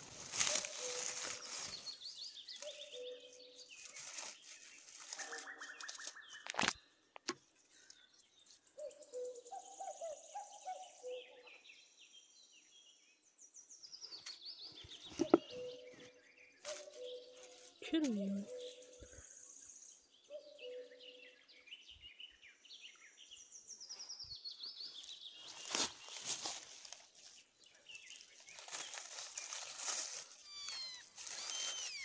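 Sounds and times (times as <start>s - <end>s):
grass and leaves rustling: 0.0s - 8.7s, 14.0s - 18.9s, 23.9s - 32.0s
small birds calling and chirping: 0.0s - 32.0s.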